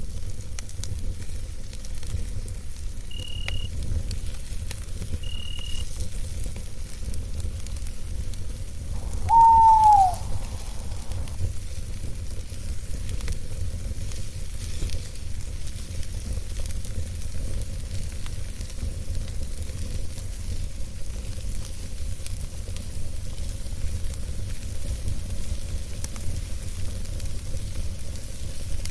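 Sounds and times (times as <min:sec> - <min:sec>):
campfire crackling: 0:00.0 - 0:28.9
low rumble: 0:08.9 - 0:09.4, 0:10.1 - 0:11.5
owl hooting: 0:09.0 - 0:11.5.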